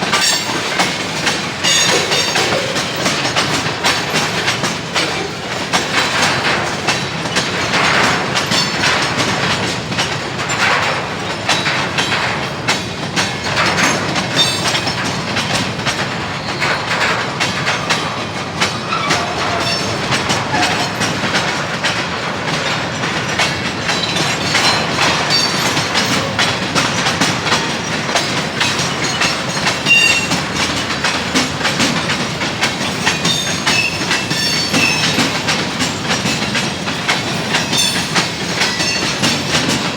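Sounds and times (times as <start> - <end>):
train wheels clicking over rail joints: 0.0 - 39.9
high wheel squeals: 0.1 - 6.4, 18.8 - 21.6, 23.3 - 31.0, 31.8 - 39.6.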